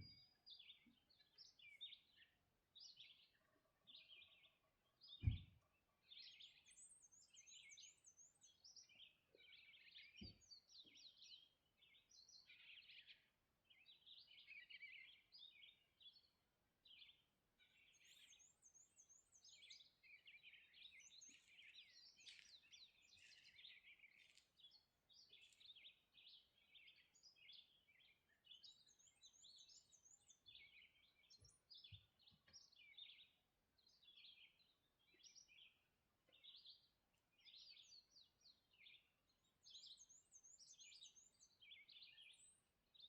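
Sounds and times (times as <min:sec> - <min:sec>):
songbirds singing: 0:00.0 - 0:43.0
faint low thud: 0:05.2 - 0:05.6.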